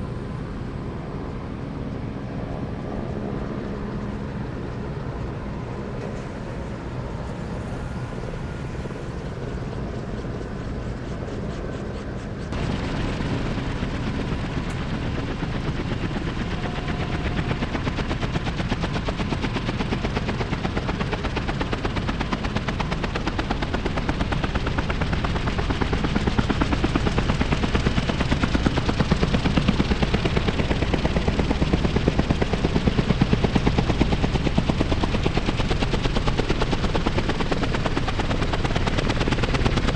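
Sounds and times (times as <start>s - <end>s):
helicopter rotors beating: 0.0s - 39.9s.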